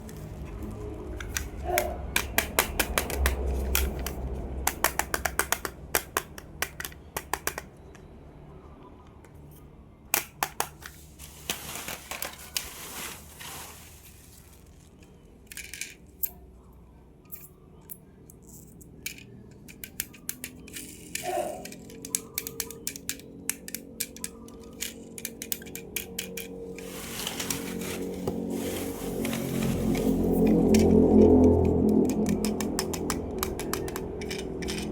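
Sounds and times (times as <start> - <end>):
plastic toy clicks and taps: 1.2 - 8.1, 10.1 - 11.0, 19.6 - 26.6, 30.4 - 34.9
plastic packaging rustling: 10.8 - 15.5, 26.5 - 31.2.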